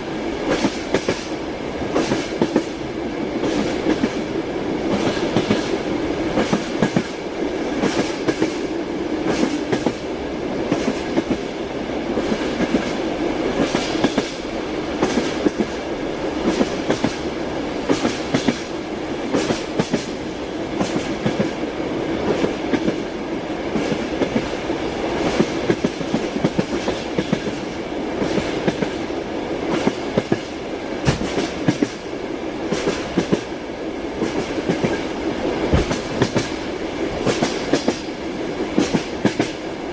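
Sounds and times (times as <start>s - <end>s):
train rumble: 0.0s - 39.9s
train wheels clacking over joints: 37.2s - 38.1s.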